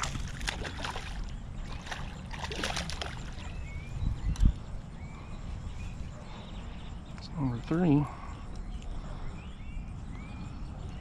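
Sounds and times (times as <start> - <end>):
water splashing and sloshing: 0.0 - 3.7.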